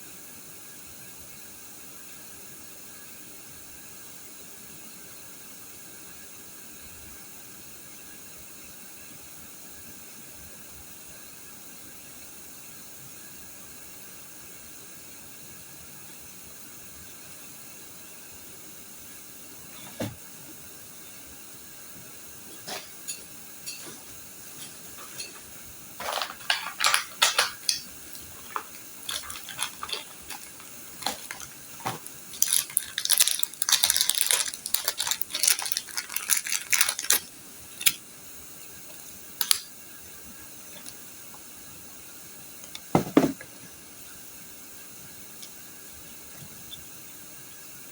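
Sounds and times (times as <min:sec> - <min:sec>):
steady hiss: 0:00.0 - 0:47.9
hard objects clicking and clattering: 0:22.5 - 0:38.0, 0:39.4 - 0:39.7, 0:42.6 - 0:43.5.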